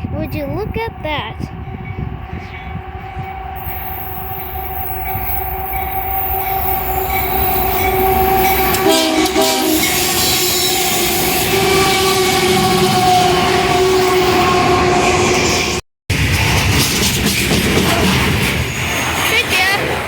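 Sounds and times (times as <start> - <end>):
train rumble and wheel noise: 0.0 - 20.0
locomotive horn: 6.4 - 15.4.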